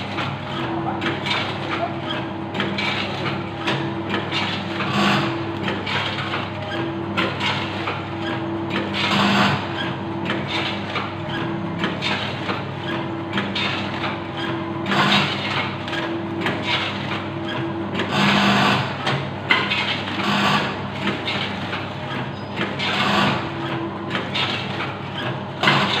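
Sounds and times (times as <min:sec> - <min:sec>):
machine clicking and rattling: 0:00.0 - 0:09.6, 0:13.2 - 0:26.0
machine motor hum: 0:00.0 - 0:26.0.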